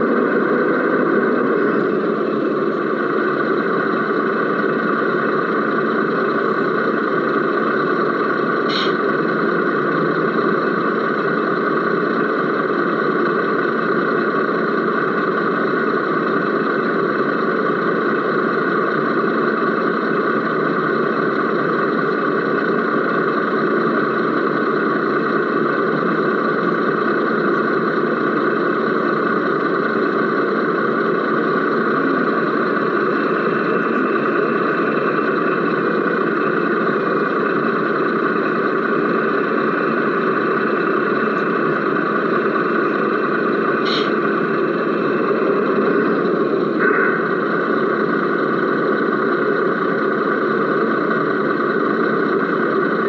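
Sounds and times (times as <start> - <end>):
model truck motor humming: 0.0 - 53.0
thin high whine: 43.7 - 47.6.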